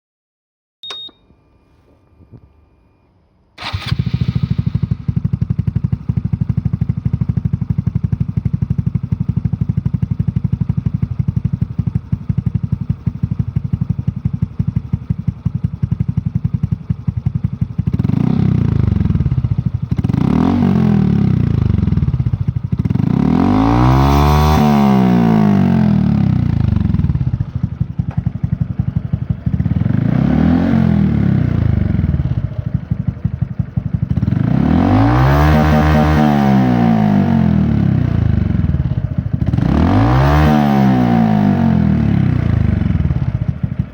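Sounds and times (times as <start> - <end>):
click and tone: 0.8 - 2.7
motorcycle engine idling and revving: 3.6 - 43.9.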